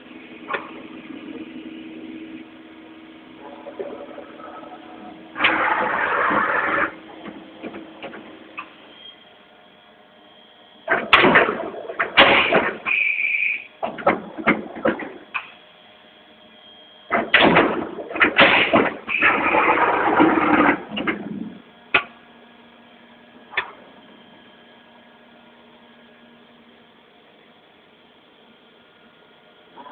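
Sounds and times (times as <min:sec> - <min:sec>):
machine hum: 0:00.0 - 0:29.9
machine mechanical bursts: 0:03.4 - 0:07.7.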